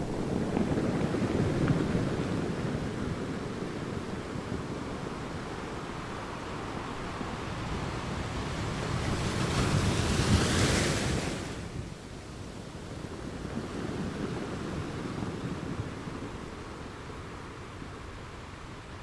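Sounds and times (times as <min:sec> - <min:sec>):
wave breaking on beach: 0:00.0 - 0:11.8
surf rumble: 0:00.0 - 0:19.0.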